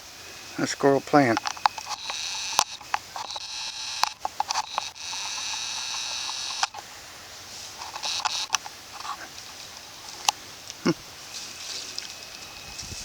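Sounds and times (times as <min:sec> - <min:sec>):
insects trilling: 0:00.0 - 0:13.0
sharp clicks and crackles: 0:01.2 - 0:06.8, 0:07.8 - 0:10.8.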